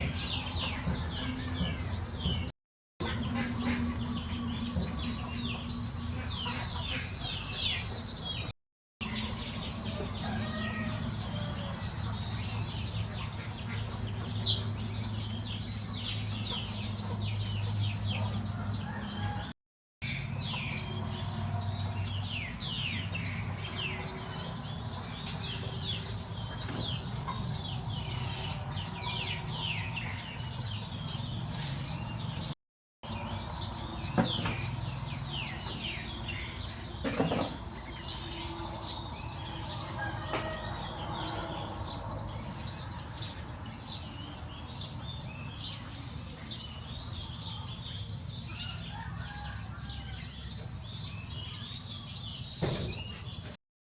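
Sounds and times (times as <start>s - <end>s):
chicks peeping: 0.0s - 19.5s, 20.1s - 32.5s.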